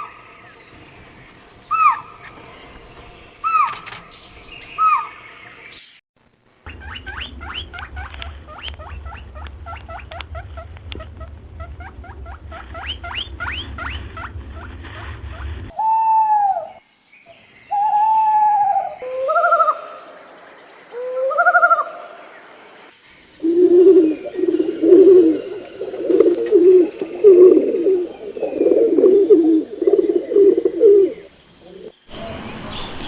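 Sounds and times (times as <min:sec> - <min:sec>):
low hum: 0:05.4 - 0:15.8.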